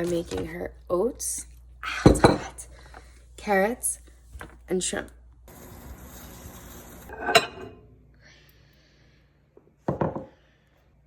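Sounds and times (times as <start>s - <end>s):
cooking hiss: 5.5s - 7.2s.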